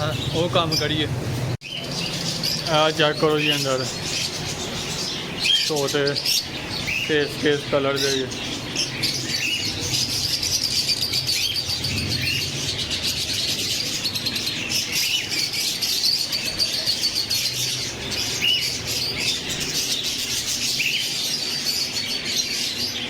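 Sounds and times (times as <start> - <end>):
caged birds chirping: 0.0 - 23.0
short rising bird calls: 8.8 - 22.3.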